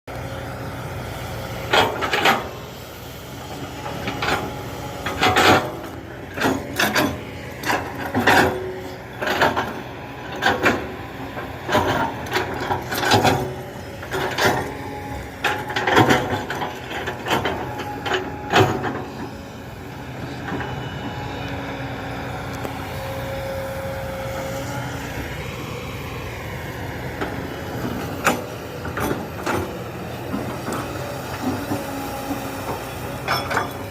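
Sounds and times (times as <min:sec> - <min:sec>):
diesel excavator engine running: 0:00.1 - 0:33.9
loud metal clanks and knocks: 0:03.9 - 0:11.0.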